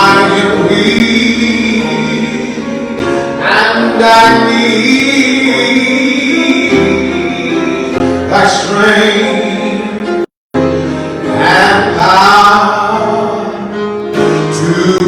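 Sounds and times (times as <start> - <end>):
gospel singing: 0.0 - 10.3, 11.2 - 15.0
keyboard accompaniment: 0.0 - 15.0.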